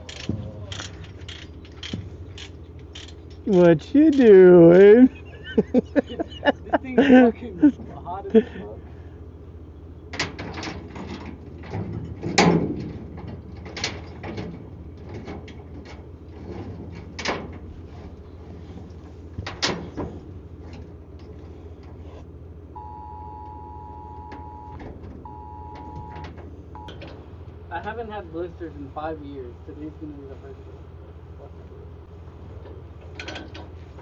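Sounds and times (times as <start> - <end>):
sharp knocks and clanks: 0.0 - 6.3, 10.1 - 17.7
low engine-like hum: 0.0 - 34.0
electronic two-tone beep: 22.8 - 26.2.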